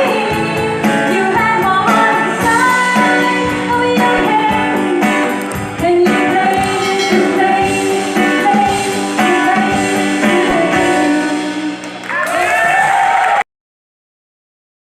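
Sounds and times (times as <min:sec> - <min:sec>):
person singing: 0:00.0 - 0:12.0
guitar: 0:00.0 - 0:12.5
steady drum beat: 0:00.4 - 0:11.8.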